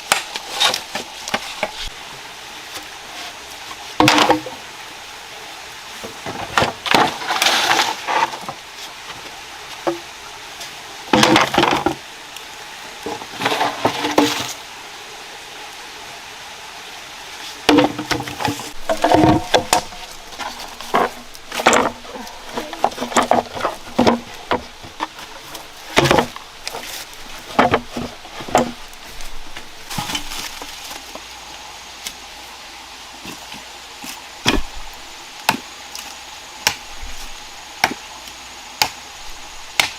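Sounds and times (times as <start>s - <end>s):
wooden knocks: 17.7s - 25.1s.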